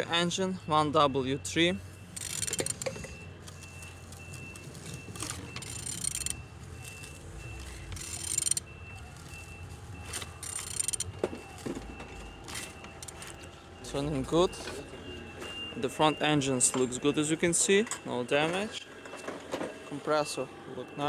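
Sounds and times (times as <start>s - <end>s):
engine cranked with wrench rasping: 1.6s - 15.1s.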